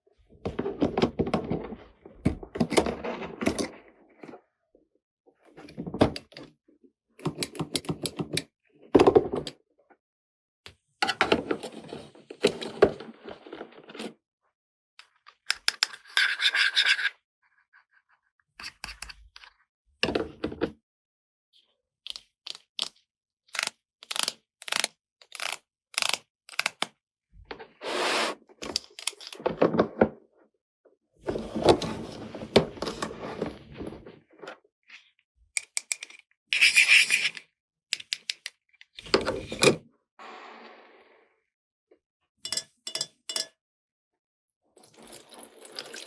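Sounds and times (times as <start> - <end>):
plastic toy pieces clicking: 22.1 - 26.9, 35.6 - 36.7.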